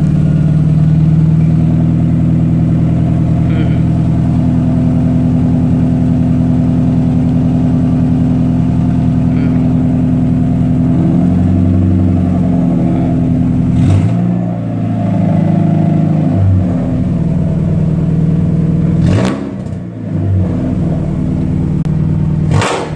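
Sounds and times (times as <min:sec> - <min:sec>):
loud car engine running: 0:00.0 - 0:22.9
sharp exhaust cracks: 0:22.4 - 0:22.9.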